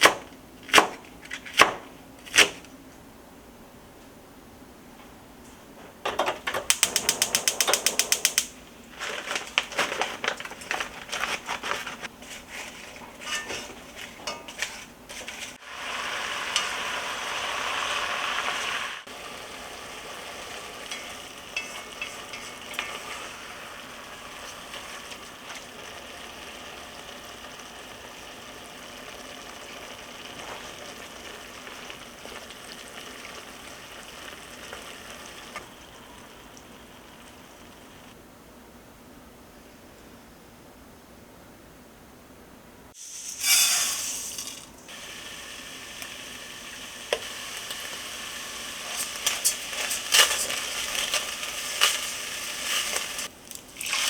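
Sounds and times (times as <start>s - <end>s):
utensils knocking: 6.1s - 8.6s
rapid even clicks: 6.7s - 8.6s
food sizzling in a pot: 13.2s - 38.1s, 43.0s - 54.0s.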